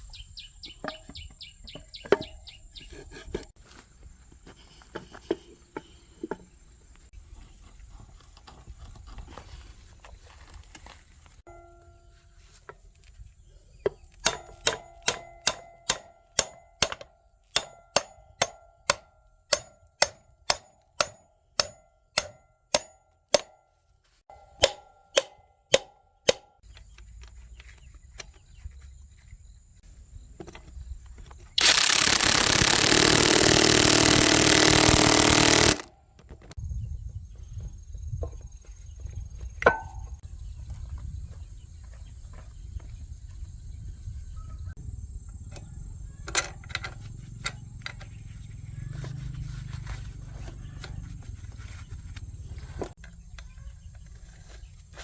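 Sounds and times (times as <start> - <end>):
hammer on metal: 14.2 - 23.6.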